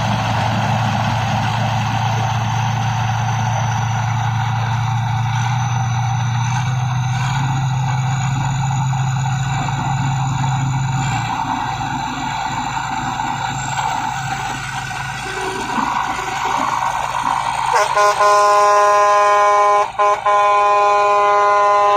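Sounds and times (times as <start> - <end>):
combine harvester engine running: 0.0 - 21.9
thin high whine: 7.4 - 21.9.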